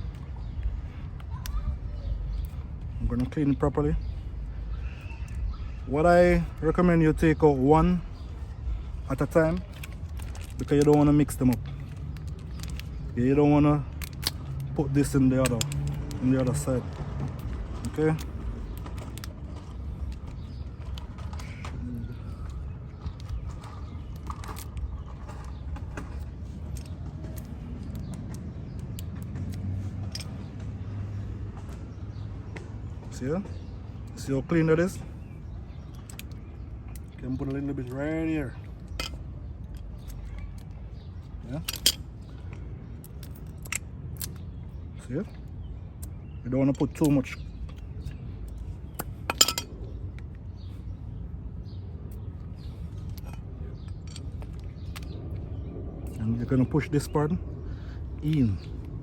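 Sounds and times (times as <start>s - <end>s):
small metal parts clicking: 9.6s - 13.2s, 38.8s - 42.1s, 42.9s - 44.5s, 48.5s - 49.7s
clicks of brake parts handled: 15.4s - 16.6s, 41.6s - 44.4s.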